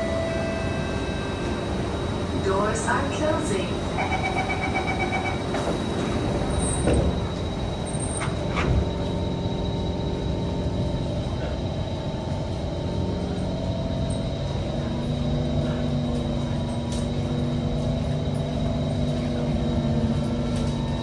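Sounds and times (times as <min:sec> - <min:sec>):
steady motor tones: 0:00.0 - 0:11.6
metro train rumble: 0:00.0 - 0:21.0.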